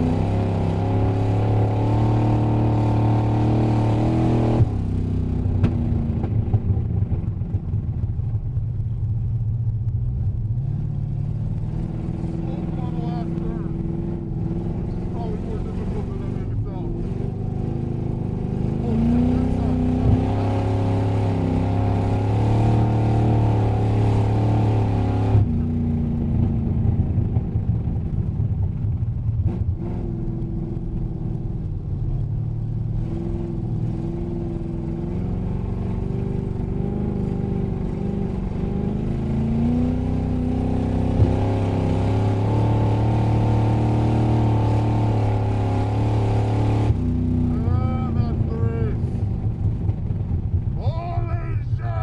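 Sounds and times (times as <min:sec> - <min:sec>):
race car engine from inside cabin: 0:00.0 - 0:52.0.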